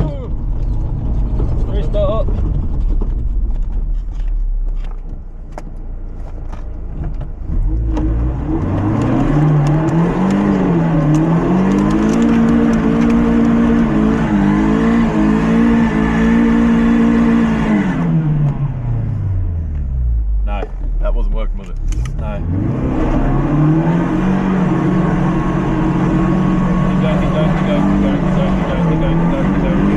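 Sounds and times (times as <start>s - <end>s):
car engine revving: 6.1s - 29.9s.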